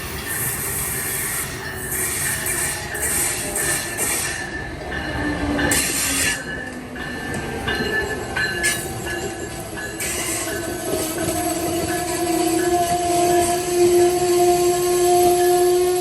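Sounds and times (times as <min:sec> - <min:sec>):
train rumble on rails: 0:00.0 - 0:16.0
train wheel squeal: 0:00.0 - 0:16.0.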